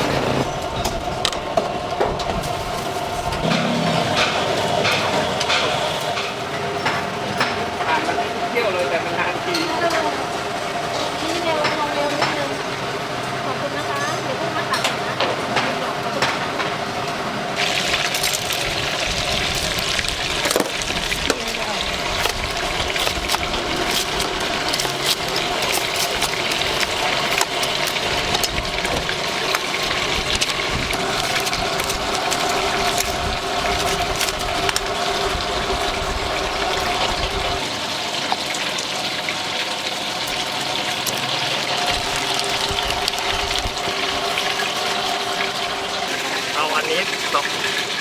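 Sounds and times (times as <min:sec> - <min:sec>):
deep-fryer oil bubbling: 0:00.4 - 0:48.0.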